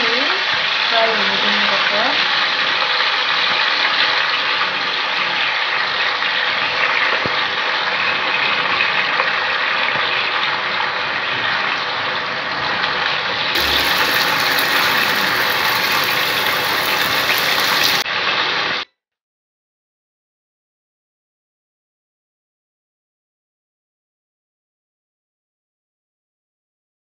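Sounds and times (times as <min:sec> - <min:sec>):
chicken sizzling in hot oil: 0:00.2 - 0:18.8.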